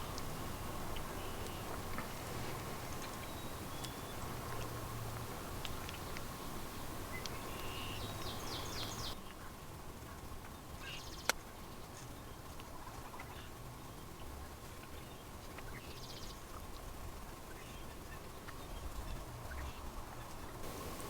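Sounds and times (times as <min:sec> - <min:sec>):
thin steady hum: 0:00.0 - 0:09.4, 0:20.6 - 0:21.0
faint hiss: 0:00.0 - 0:21.0
faint bird chirps: 0:05.8 - 0:09.2.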